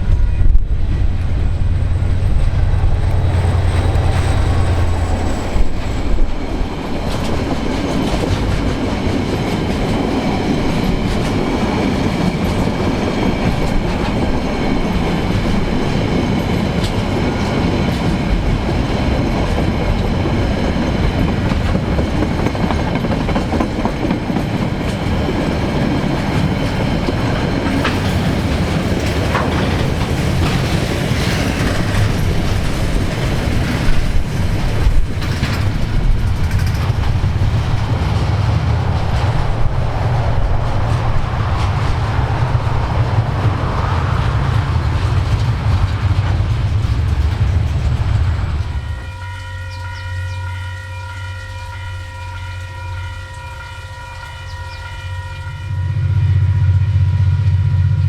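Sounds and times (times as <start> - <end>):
freight train rumbling past: 0.0 - 58.0
wheel clatter over rail joints: 0.4 - 49.0
train horn held tone: 48.8 - 58.0.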